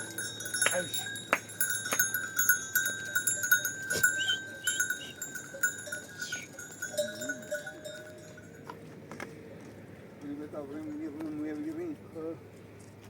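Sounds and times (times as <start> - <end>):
animal bells clinking: 0.0 - 8.9.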